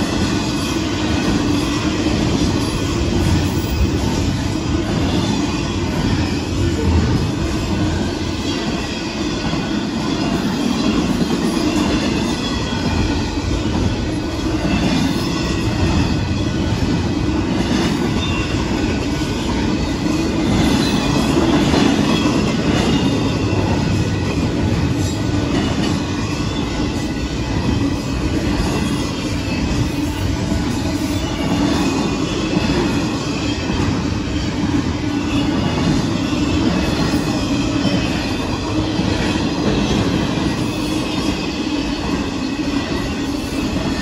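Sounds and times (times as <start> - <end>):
train wheels rolling on rails: 0.0 - 44.0
high squeal from wheels: 17.8 - 44.0.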